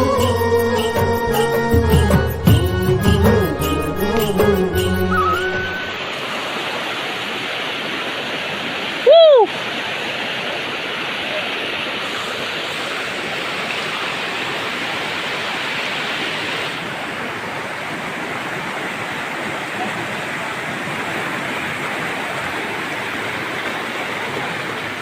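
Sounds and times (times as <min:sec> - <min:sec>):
waterfall rushing: 0:03.4 - 0:25.0
whistle-like tone: 0:04.7 - 0:06.0.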